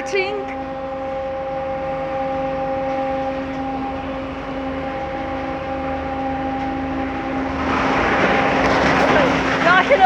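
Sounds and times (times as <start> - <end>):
motor hum: 0.0 - 10.0
car wash brushes scrubbing: 7.6 - 10.0.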